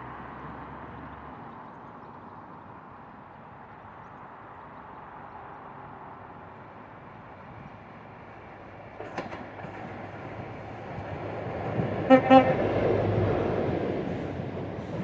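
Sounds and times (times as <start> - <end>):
train rumble: 7.3 - 15.0.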